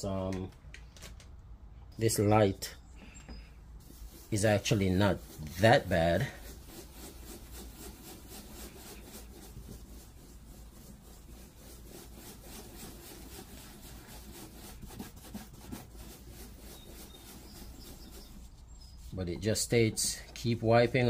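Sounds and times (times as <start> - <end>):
pad rubbing plastic lens: 3.8 - 19.2.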